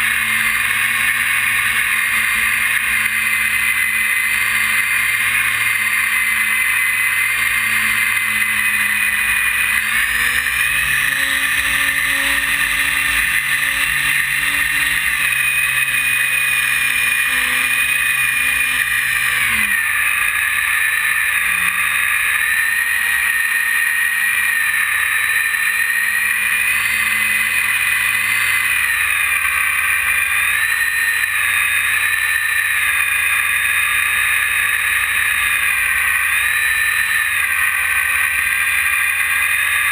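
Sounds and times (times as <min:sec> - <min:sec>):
electric motor and propeller whining: 0:00.0 - 0:39.9.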